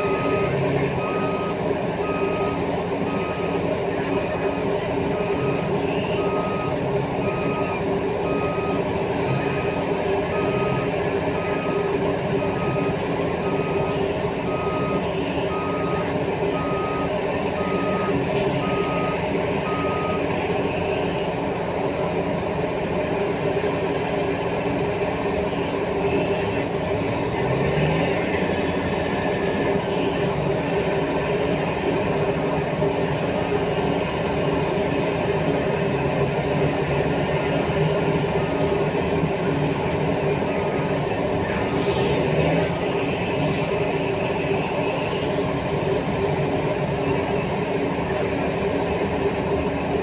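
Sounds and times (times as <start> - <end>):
reversing alarm beeping: 0.0 - 21.1
heavy diesel engines running: 0.0 - 50.0.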